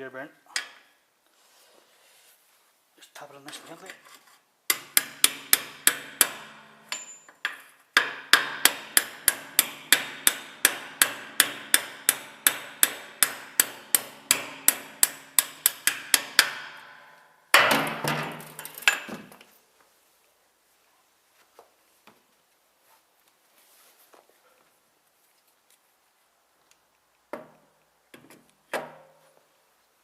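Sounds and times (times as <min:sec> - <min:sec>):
hammer tapping metal: 0:04.7 - 0:19.1.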